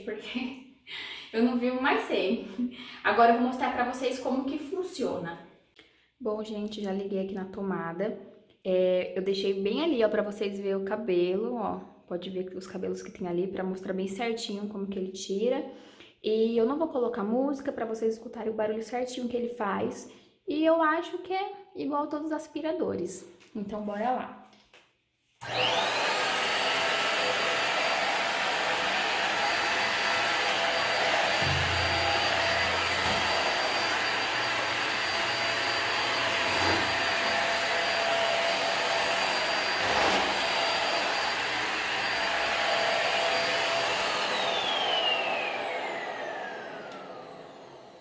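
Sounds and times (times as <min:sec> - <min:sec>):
vacuum motor whining: 0:25.4 - 0:48.0.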